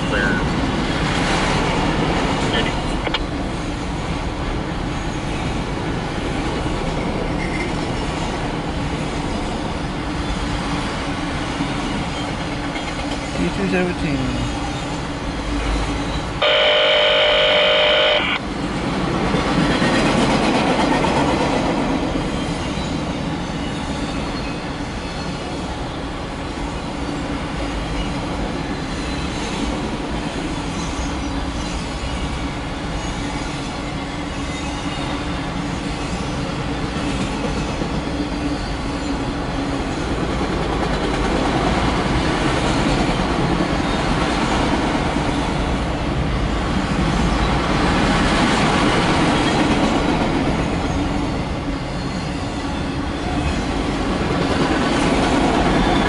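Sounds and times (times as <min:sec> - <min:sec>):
freight cars rumbling and rattling: 0:00.0 - 0:16.5, 0:17.5 - 0:56.0
train horn blast: 0:16.4 - 0:18.4.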